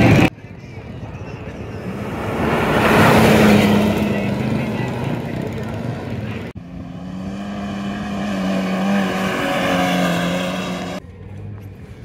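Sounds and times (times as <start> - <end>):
outdoor background noise: 0.0 - 12.0
rally car engine revving past: 1.9 - 6.0, 6.6 - 11.0.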